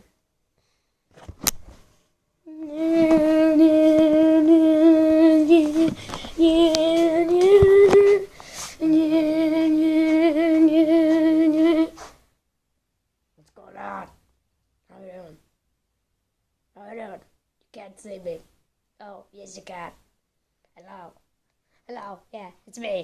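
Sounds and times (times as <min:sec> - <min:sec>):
person humming low note: 0:02.5 - 0:12.0.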